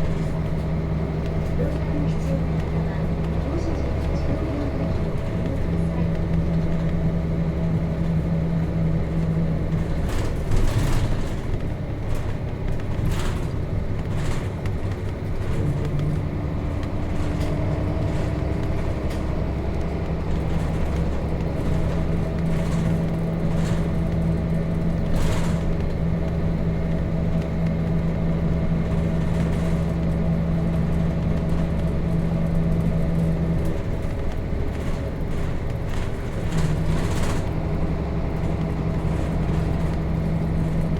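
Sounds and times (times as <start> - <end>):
bus diesel engine drone: 0.0 - 40.9.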